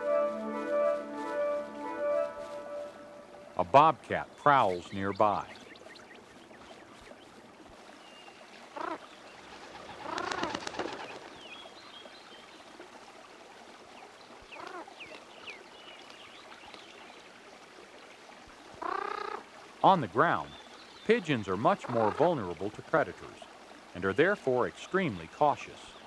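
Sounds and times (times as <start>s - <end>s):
pigeons calling: 8.8s - 11.6s
wingbeats flurry: 9.4s - 11.6s.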